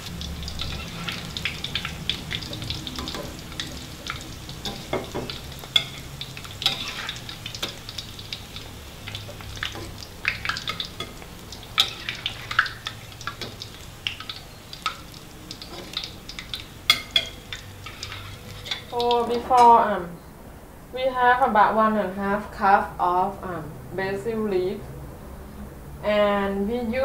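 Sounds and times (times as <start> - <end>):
food sizzling in hot oil: 0.0 - 19.6
metal spatula scraping a wok: 0.6 - 3.5, 4.1 - 7.7, 11.8 - 12.6, 16.9 - 19.0.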